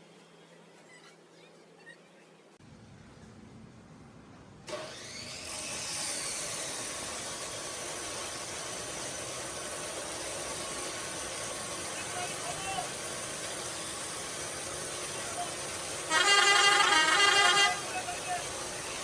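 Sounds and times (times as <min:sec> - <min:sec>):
machine running: 0:04.6 - 0:19.0.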